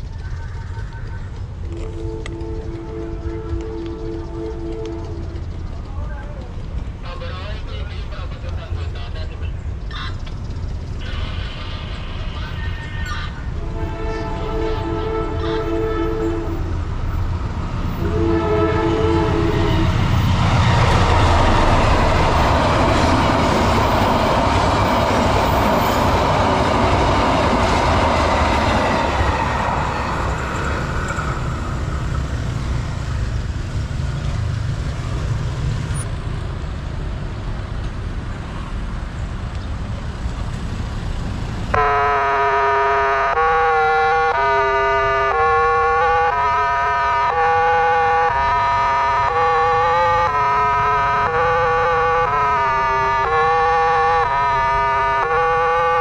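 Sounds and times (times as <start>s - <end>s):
train rushing past: 0.0s - 56.0s
electronic crossing siren: 41.7s - 56.0s.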